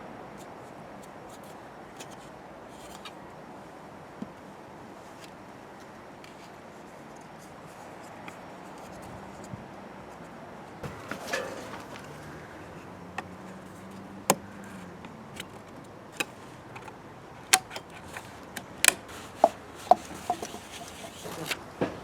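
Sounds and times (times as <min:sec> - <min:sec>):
hand tools knocking and tapping: 0:19.4 - 0:21.2.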